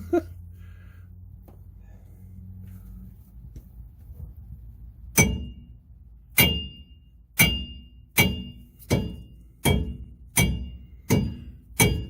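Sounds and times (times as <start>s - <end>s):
hammer clanging on metal axle: 5.1s - 5.7s, 6.3s - 12.0s.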